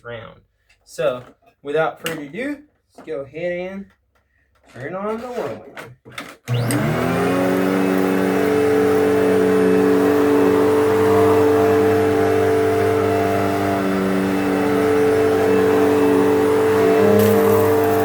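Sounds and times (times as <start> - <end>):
vacuum cleaner running: 6.5 - 18.0.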